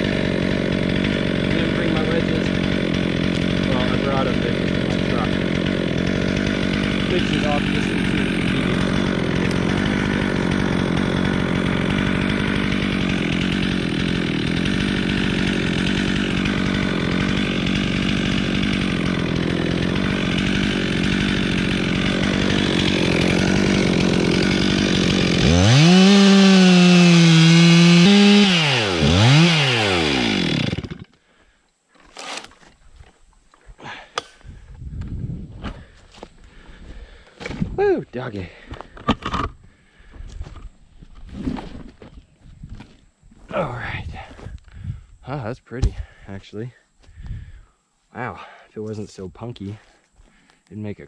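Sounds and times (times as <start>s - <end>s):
chainsaw engine revving: 0.0s - 31.1s
chainsaw cutting tree trunk: 0.0s - 31.2s, 32.0s - 32.7s.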